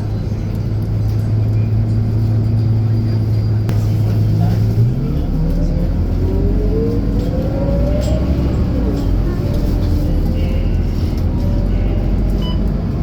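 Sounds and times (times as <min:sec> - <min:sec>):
bus engine running: 0:00.0 - 0:13.0
rising engine whine: 0:03.7 - 0:13.0.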